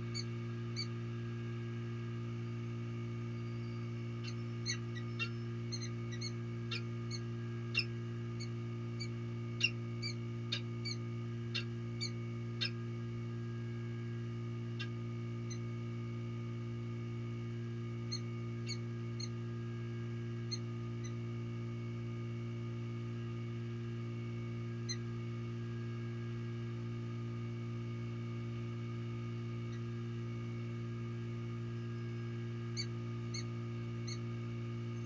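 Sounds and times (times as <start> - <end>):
low electrical hum: 0.0 - 35.0
high bird chirps: 3.4 - 11.0.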